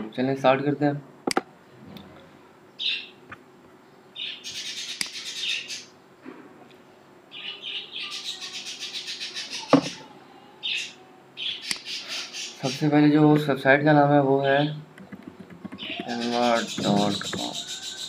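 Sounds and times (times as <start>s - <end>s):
bird chirping and chattering: 2.8s - 3.2s, 4.2s - 6.0s, 7.3s - 13.0s, 14.4s - 18.0s
sharp click: 5.0s - 5.2s, 11.6s - 11.9s.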